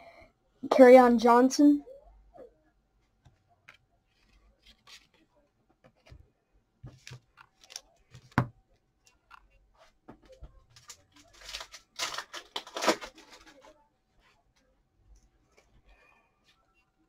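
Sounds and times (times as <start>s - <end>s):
cards rustling and sliding: 4.2s - 5.3s.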